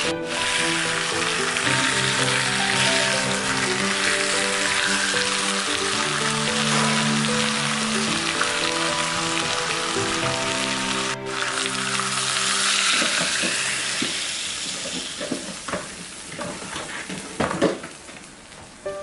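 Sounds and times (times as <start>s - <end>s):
water pouring: 0.0s - 18.0s
chicken sizzling in pot: 0.0s - 18.8s
spattering pops: 12.9s - 18.7s.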